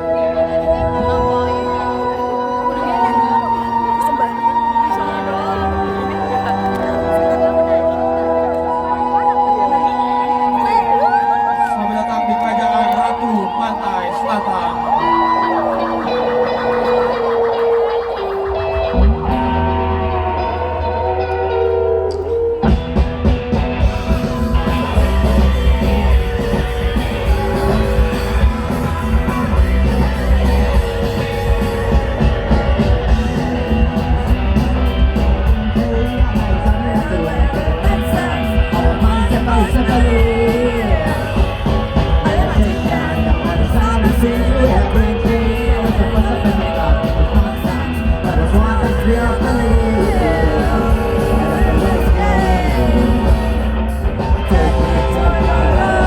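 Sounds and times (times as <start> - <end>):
loud rock music: 0.0 - 56.0
person singing: 35.4 - 56.0.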